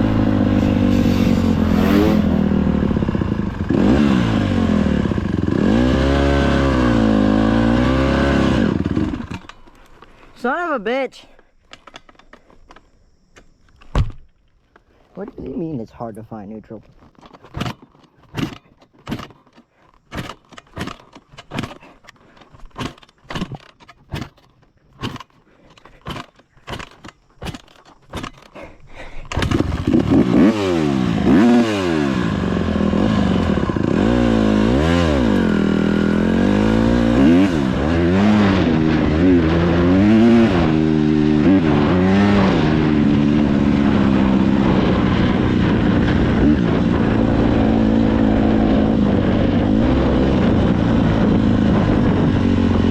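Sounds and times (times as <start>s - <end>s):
dirt bike engine revving: 0.0s - 9.6s, 17.5s - 19.4s, 22.6s - 28.7s, 29.3s - 52.9s.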